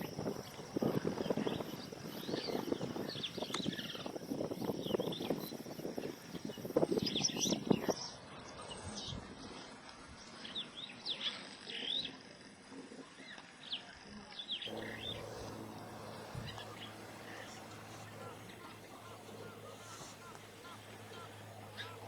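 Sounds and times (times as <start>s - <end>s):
bird repeated soft notes: 14.7s - 22.0s
low steady hum: 14.7s - 22.0s
wild birds chirping: 14.7s - 22.0s.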